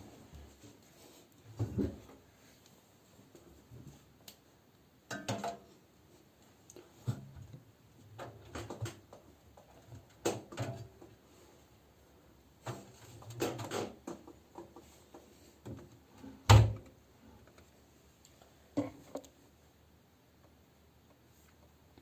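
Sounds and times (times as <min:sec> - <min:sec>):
washing machine door knocks and clicks: 0:16.5 - 0:16.8.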